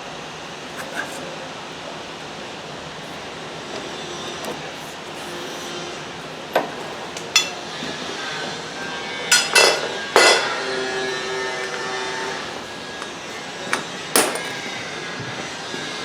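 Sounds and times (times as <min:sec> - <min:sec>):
hammer striking metal: 0:06.6 - 0:07.7, 0:09.3 - 0:10.8.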